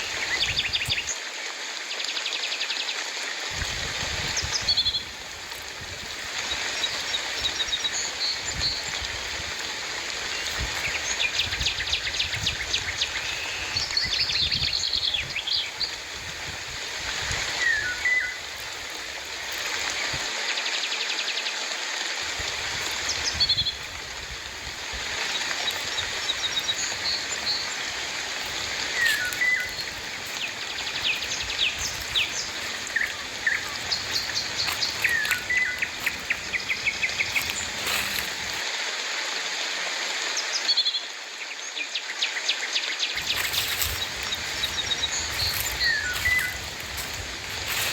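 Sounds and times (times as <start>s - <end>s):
birds chirping and calling: 0.0s - 1.1s, 3.6s - 20.2s, 22.4s - 38.6s, 43.2s - 47.9s
rain falling: 0.0s - 1.9s, 3.5s - 20.4s, 22.2s - 38.8s, 43.2s - 47.9s.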